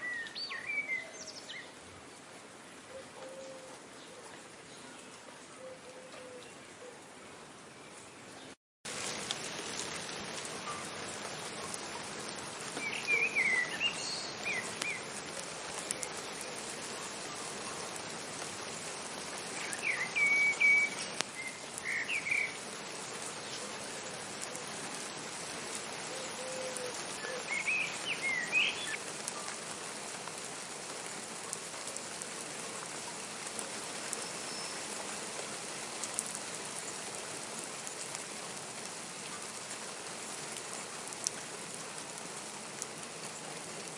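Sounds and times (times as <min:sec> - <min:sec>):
steady rain falling: 0:00.0 - 0:43.9
high chirping calls: 0:12.8 - 0:15.1, 0:19.6 - 0:22.6, 0:27.2 - 0:29.0.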